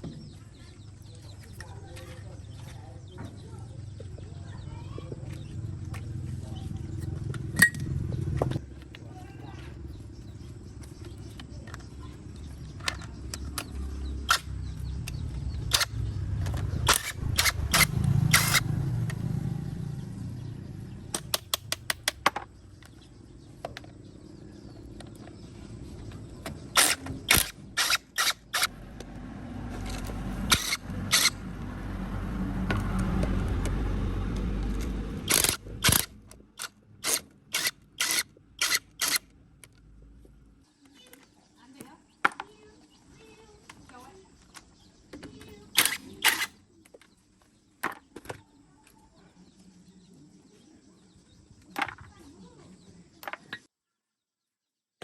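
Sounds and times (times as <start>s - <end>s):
low rumble: 3.9s - 9.0s, 13.1s - 21.3s, 28.6s - 36.3s
metal tools clinking: 7.0s - 8.0s
ratchet clicks: 12.8s - 19.2s, 26.7s - 28.7s, 29.9s - 31.4s, 34.6s - 39.3s, 45.7s - 46.5s.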